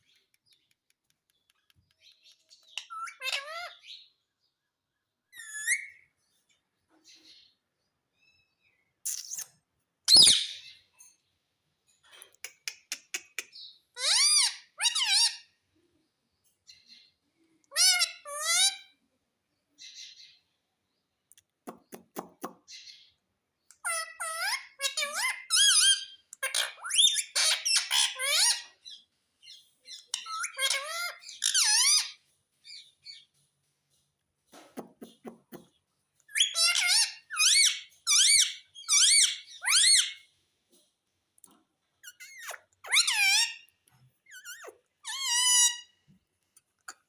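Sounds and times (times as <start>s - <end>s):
parakeet squawking and chirping: 2.6s - 4.1s, 5.3s - 6.0s, 10.1s - 10.8s, 13.5s - 15.5s, 17.7s - 18.9s, 23.8s - 33.2s, 36.2s - 40.3s, 42.0s - 46.0s.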